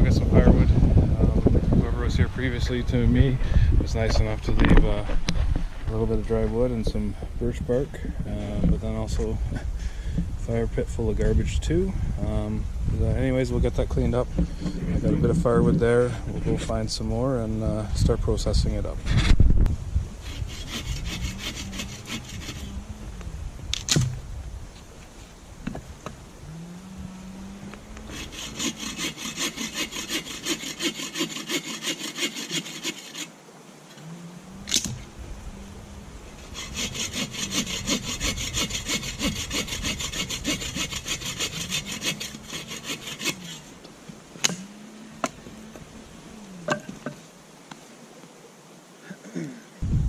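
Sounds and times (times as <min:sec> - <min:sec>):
hand saw cutting wood: 0:20.2 - 0:22.8, 0:28.0 - 0:33.3, 0:36.4 - 0:43.8.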